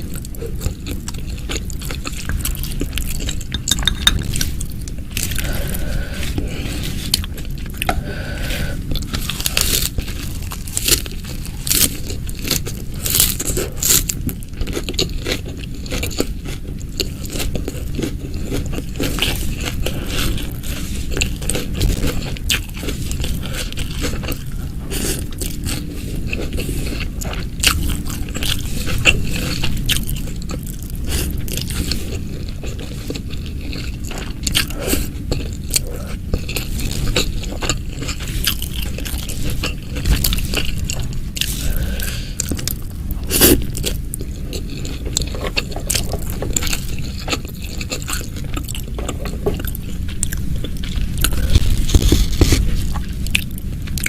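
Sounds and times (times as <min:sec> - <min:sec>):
crunchy chewing of fried chicken: 0:00.0 - 0:54.0.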